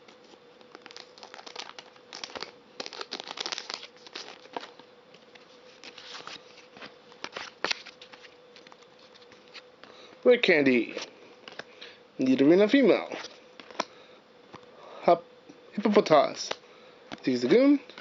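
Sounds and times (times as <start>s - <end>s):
faint steady hum: 0.0s - 18.0s
foil wrapper crinkling: 0.2s - 10.0s.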